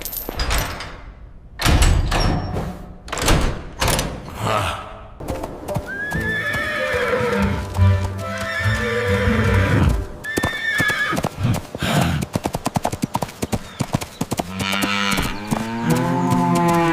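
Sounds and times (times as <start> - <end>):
background music: 4.4 - 10.3
clip-clopping hoofbeats: 5.2 - 16.9.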